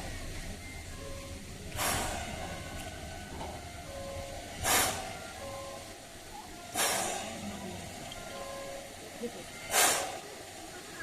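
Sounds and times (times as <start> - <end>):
steam hiss bursts: 1.7 - 3.1, 4.0 - 5.9, 6.6 - 8.8, 9.4 - 10.6.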